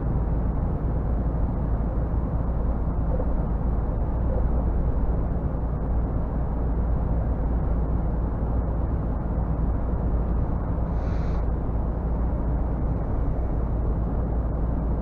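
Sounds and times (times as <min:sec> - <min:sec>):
diesel truck engine rumble: 0:00.0 - 0:15.0
road and tyre noise: 0:00.0 - 0:15.0.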